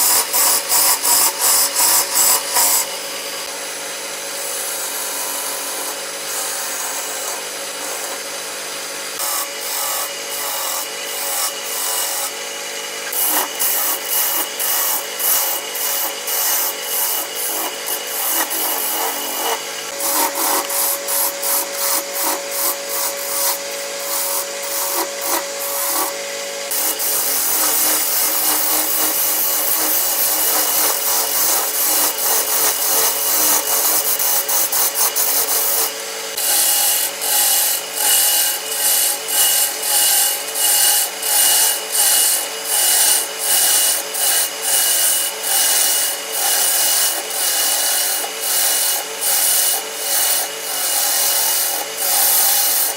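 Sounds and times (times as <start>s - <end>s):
tool scraping wood on lathe: 0.0s - 3.0s, 4.4s - 8.3s, 9.2s - 12.4s, 13.0s - 52.9s.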